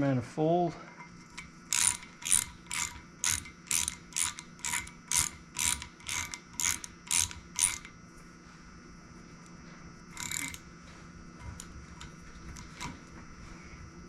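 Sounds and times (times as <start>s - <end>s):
ratchet wrench clicking: 1.4s - 8.0s, 10.1s - 10.6s.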